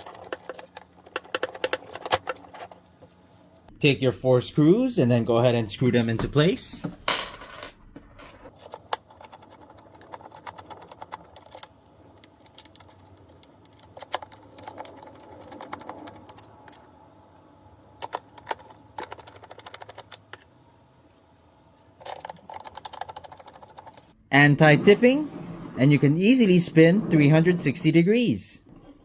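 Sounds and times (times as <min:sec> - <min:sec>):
screws rattling: 0:22.0 - 0:24.1.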